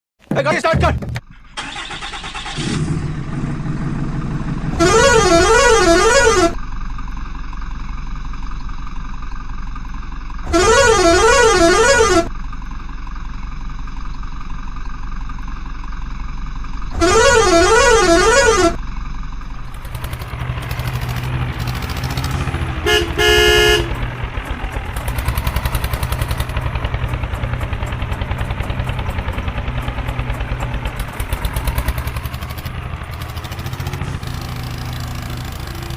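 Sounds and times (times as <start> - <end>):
tractor engine running: 0.2 - 35.9
warbling horn blasts: 4.6 - 6.6, 10.4 - 12.3, 16.9 - 18.8, 21.5 - 35.9.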